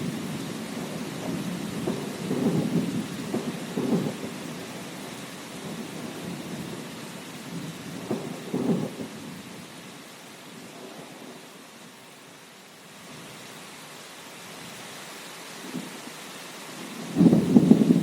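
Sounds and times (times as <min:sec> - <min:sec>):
thunder rumbling: 0:00.0 - 0:09.4, 0:16.9 - 0:18.0
steady rain: 0:00.0 - 0:18.0.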